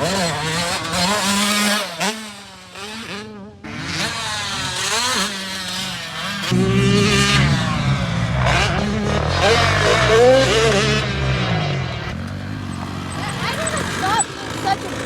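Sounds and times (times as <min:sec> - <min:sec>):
dirt bike engine revving: 0:00.0 - 0:15.0
steady engine note: 0:06.5 - 0:12.1.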